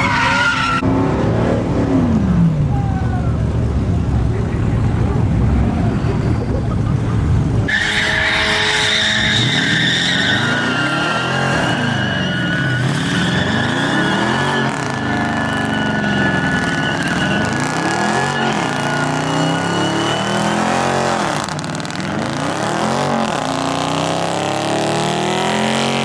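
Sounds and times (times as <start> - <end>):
tyres squealing: 0.0 - 0.8, 7.6 - 23.8
truck engine revving: 0.0 - 26.0.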